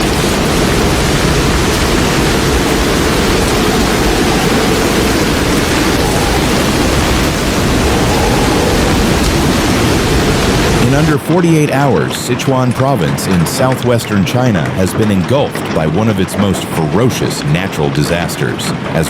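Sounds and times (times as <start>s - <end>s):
floodwater rushing: 0.0s - 11.2s.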